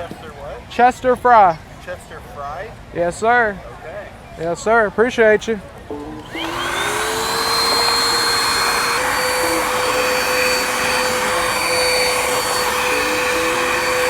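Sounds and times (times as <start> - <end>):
vacuum cleaner running: 6.2 - 14.0.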